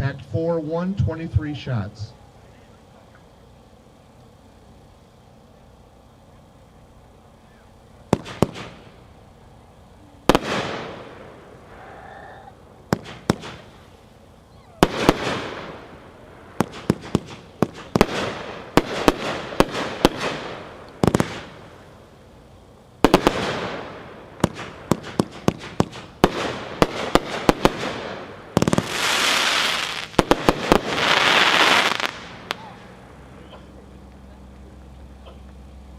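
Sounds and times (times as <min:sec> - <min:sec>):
firework crackling: 0:02.1 - 0:35.9
firework shots banging: 0:07.8 - 0:09.4, 0:10.2 - 0:11.8, 0:12.6 - 0:14.1, 0:14.8 - 0:22.2, 0:23.0 - 0:34.3.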